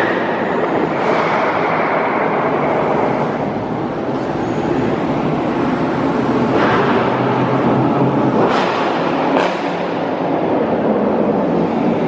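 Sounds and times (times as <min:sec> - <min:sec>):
car engines running: 0:00.0 - 0:12.0.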